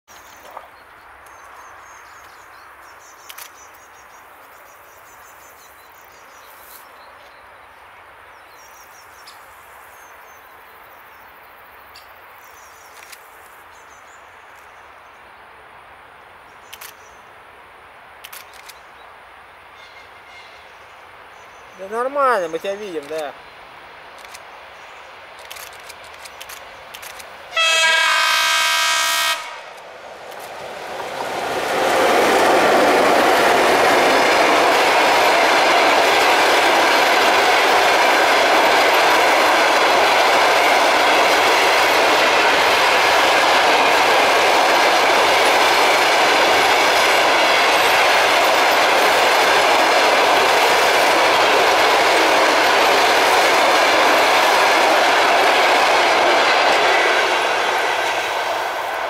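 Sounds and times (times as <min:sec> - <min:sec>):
train wheels rushing on rails: 0:24.0 - 0:59.0
locomotive horn chord: 0:27.5 - 0:29.8.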